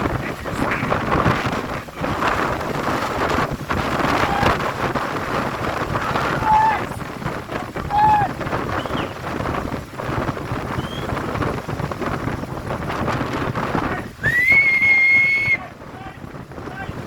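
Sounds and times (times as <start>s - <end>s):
storm wind buffeting microphone: 0.0s - 17.0s
high-pitched whistle: 14.2s - 15.6s.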